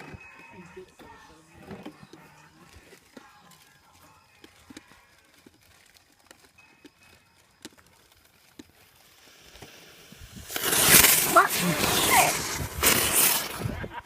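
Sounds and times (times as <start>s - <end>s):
firework hissing rush of sparks: 8.8s - 14.0s.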